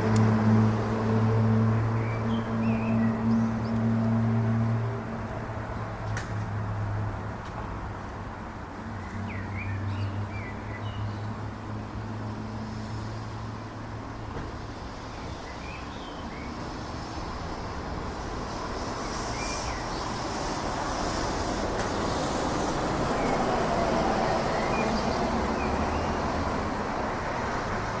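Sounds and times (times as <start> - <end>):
distant jet engines rumbling: 11.7 - 28.0.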